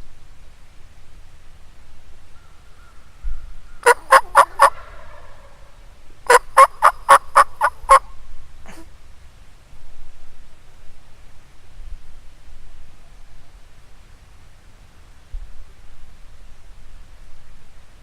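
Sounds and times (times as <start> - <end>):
turkey yelping: 3.8 - 5.7, 6.3 - 8.1.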